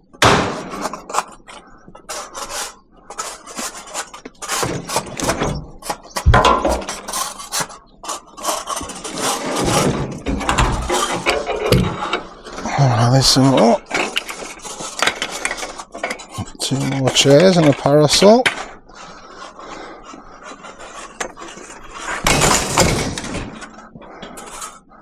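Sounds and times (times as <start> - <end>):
chairs scraping: 0.6 - 24.9
chairs knocking: 4.6 - 7.0, 9.2 - 12.2.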